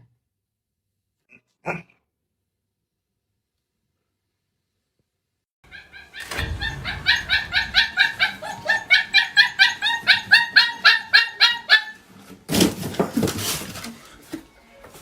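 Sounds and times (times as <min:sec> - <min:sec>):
dog barking rapid yaps: 0:05.7 - 0:12.0.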